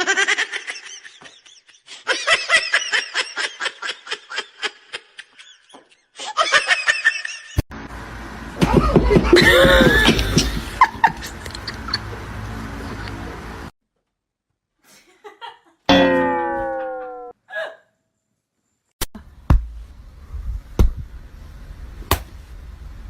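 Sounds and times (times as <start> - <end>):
high-pitched laughing: 8.6 - 12.2.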